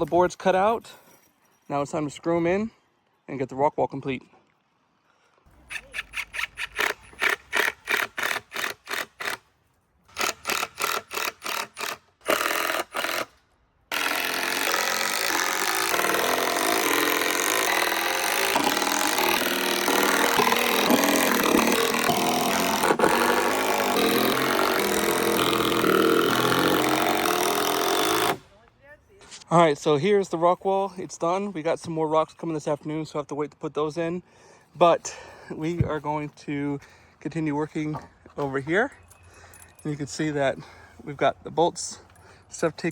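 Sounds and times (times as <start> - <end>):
power driver driving screws: 6.1 - 9.4, 10.1 - 28.4.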